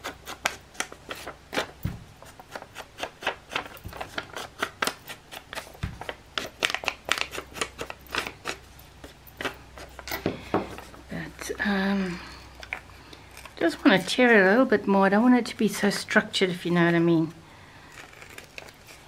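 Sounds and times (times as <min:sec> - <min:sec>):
paper rustling and clicking: 0:00.3 - 0:08.6.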